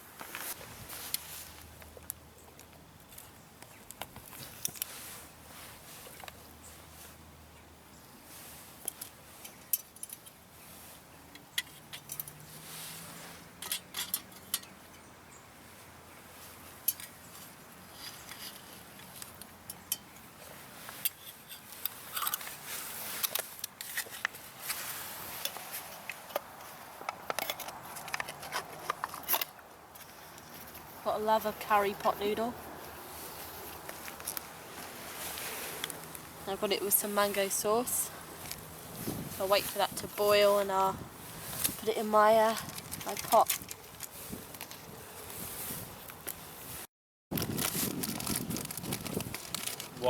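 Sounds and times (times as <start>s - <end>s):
metallic clinks of camp cookware: 8.8s - 10.4s, 11.3s - 12.4s, 13.6s - 15.1s, 16.8s - 17.2s, 19.6s - 20.3s.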